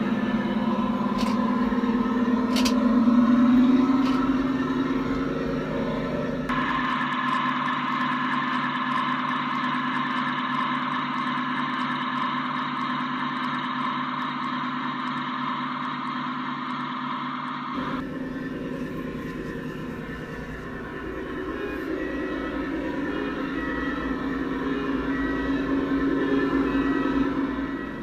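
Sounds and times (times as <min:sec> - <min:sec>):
model locomotive engine drone: 0:00.0 - 0:28.0.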